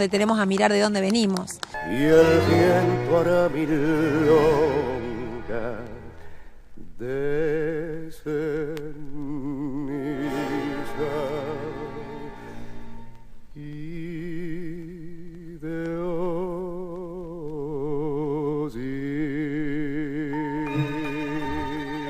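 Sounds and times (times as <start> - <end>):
low musical accompaniment: 1.8 - 6.3, 9.8 - 13.3, 19.8 - 22.0
person singing with vibrato: 1.8 - 22.0.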